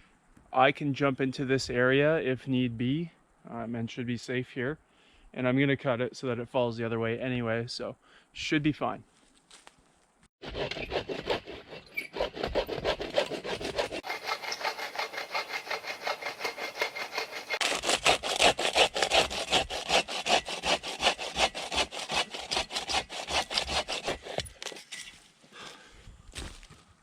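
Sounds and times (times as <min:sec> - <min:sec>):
hand saw cutting wood: 0:10.4 - 0:25.2.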